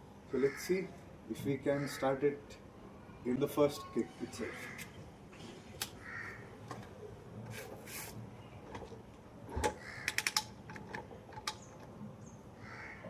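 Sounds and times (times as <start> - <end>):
sharp clicks: 9.6 - 12.0.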